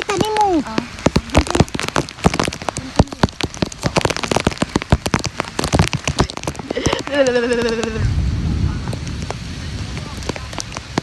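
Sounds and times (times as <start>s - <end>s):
heavy rain falling: 0.0s - 11.0s
sharp raindrop hits: 0.0s - 11.0s.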